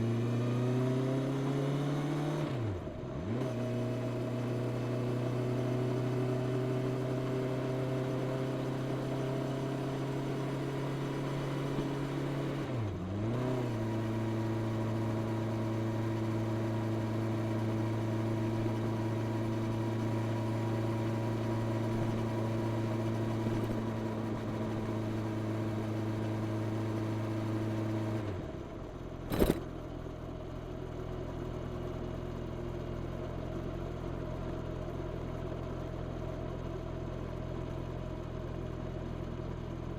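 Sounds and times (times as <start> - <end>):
motorcycle engine: 29.2 - 29.8
sharp click: 29.3 - 29.7.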